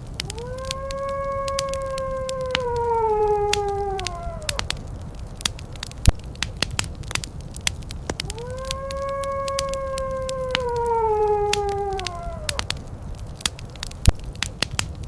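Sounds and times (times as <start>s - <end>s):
wood fire crackling and popping: 0.0s - 15.0s
wolf howling: 0.2s - 5.4s, 8.1s - 13.2s.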